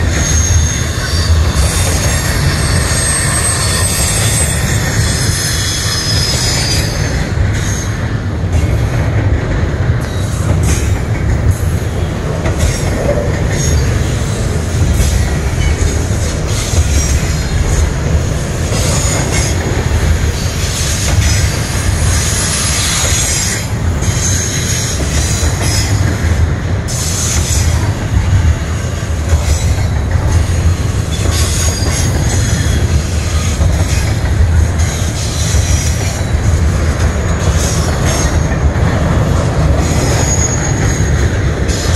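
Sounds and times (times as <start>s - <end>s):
wheel squeal and hiss: 0.0s - 8.0s, 20.4s - 26.0s, 31.1s - 34.2s, 34.8s - 36.3s, 39.8s - 41.9s.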